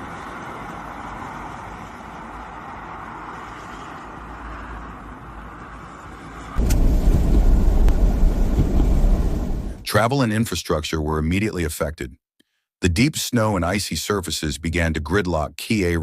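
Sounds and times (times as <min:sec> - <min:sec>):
deep rumble: 0:06.6 - 0:09.9.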